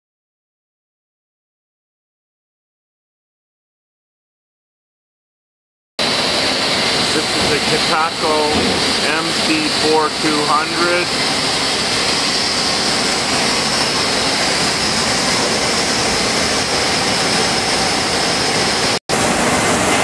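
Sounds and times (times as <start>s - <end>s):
industrial machinery roaring: 6.0s - 20.0s
steady high machine whine: 6.0s - 20.0s.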